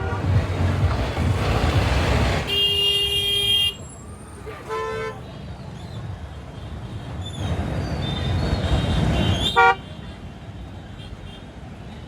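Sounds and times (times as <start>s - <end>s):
vehicle horn toot: 0.0s - 0.4s, 2.4s - 3.8s, 9.2s - 9.9s
road traffic noise: 0.0s - 12.0s.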